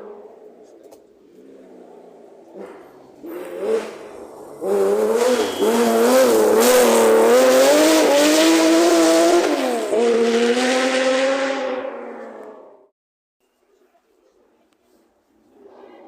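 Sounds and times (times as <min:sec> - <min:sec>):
rally car engine revving hard: 0:02.5 - 0:12.9.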